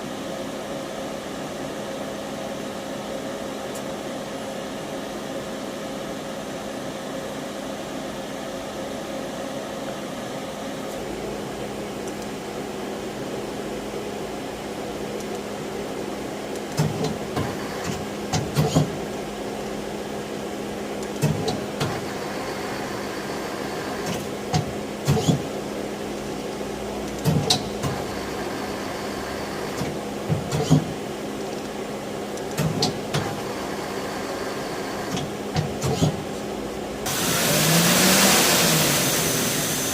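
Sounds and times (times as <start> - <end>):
lathe machine hum: 33.3 - 35.5, 36.5 - 39.9.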